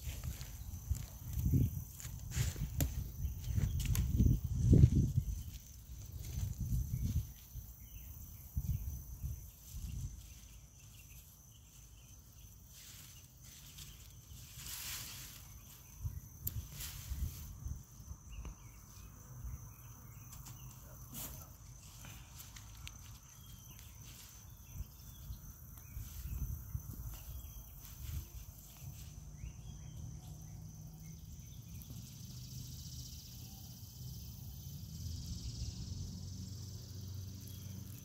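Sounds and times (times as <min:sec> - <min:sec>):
rustling of vines and soil: 0:00.0 - 0:32.0
dull thumps of digging: 0:02.0 - 0:04.2.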